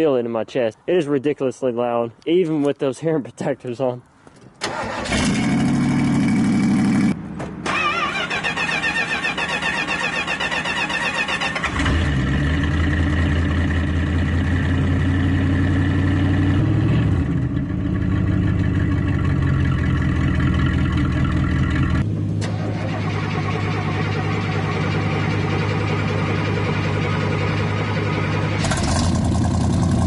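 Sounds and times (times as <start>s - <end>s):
engine running loud: 11.6s - 30.0s.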